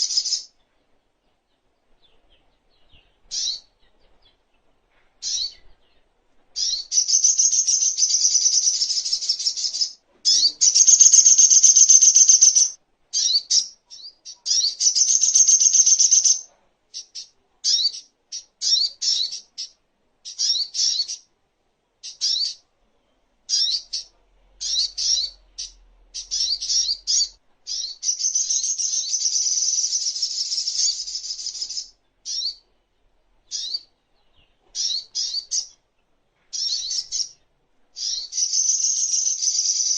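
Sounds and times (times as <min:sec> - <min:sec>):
sharp bird chirps: 0:00.0 - 0:00.5, 0:06.6 - 0:21.3, 0:23.5 - 0:32.6, 0:33.5 - 0:33.9, 0:34.8 - 0:35.8, 0:36.5 - 0:37.4, 0:38.0 - 0:39.9
bird chattering trills: 0:06.6 - 0:13.7, 0:14.5 - 0:21.2, 0:23.5 - 0:32.6, 0:33.5 - 0:33.9.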